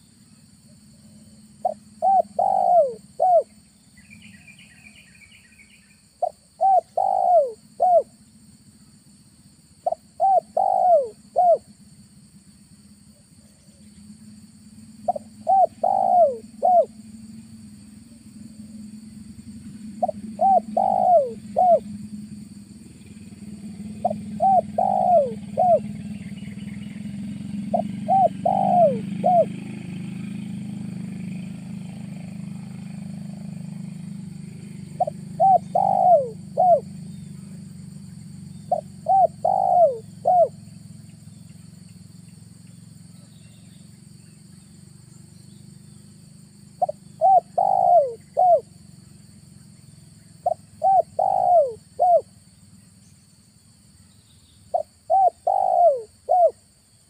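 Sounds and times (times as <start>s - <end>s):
dove cooing: 1.0s - 3.5s, 6.2s - 8.1s, 9.8s - 11.7s, 15.0s - 17.0s, 19.9s - 22.1s, 23.0s - 26.6s, 27.3s - 30.0s, 34.8s - 37.6s, 38.7s - 40.6s, 46.8s - 48.7s, 50.4s - 52.3s, 54.7s - 56.6s.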